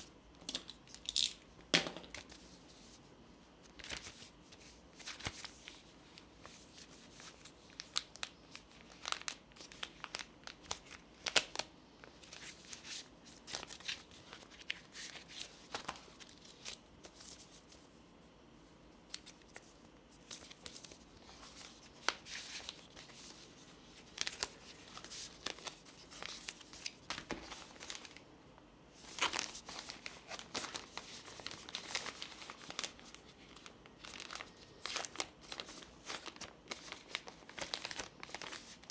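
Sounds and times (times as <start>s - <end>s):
packaging crinkling and tearing: 5.0s - 17.2s, 19.1s - 28.2s, 29.0s - 38.9s.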